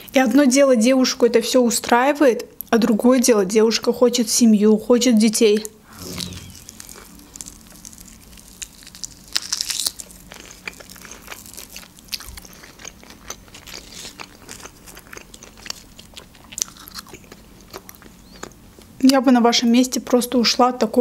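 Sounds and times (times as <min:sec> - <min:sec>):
biting and chewing meat: 0:06.0 - 0:18.9.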